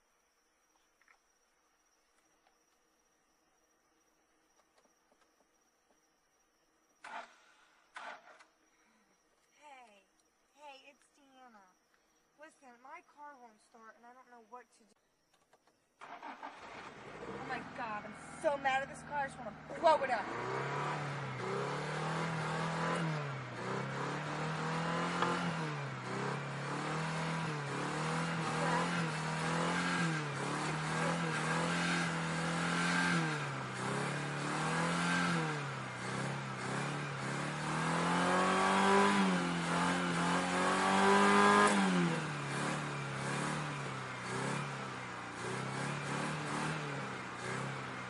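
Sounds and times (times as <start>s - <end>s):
car engine revving: 7.0s - 8.5s, 16.0s - 48.0s.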